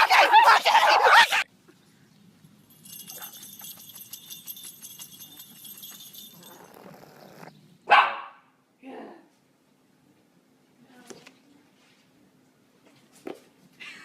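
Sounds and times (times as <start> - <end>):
rapid metallic jingling: 2.6 - 7.5.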